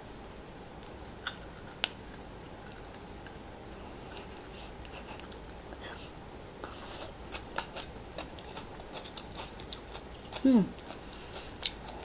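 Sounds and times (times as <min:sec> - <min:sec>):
room hiss: 0:00.0 - 0:01.2
person chewing: 0:00.8 - 0:03.4, 0:06.7 - 0:12.0.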